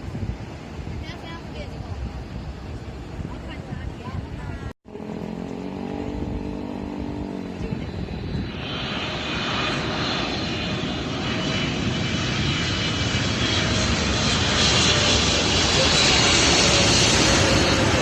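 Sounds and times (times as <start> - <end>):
jet airliner engines: 0.0 - 18.0
high engine whine: 4.9 - 18.0
low hum: 4.9 - 18.0.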